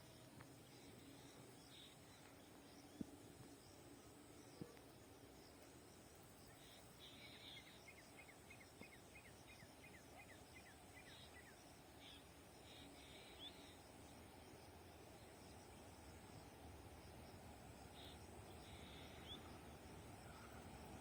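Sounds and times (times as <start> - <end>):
faint outdoor ambience: 0.0 - 21.0
bird chirping: 17.9 - 20.7.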